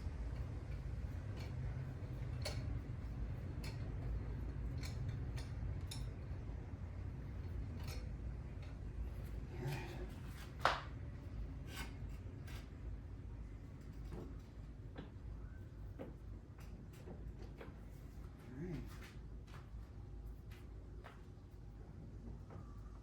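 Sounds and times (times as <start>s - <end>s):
steady low hum: 0.0s - 23.0s
tools clicking and tapping: 0.3s - 6.3s.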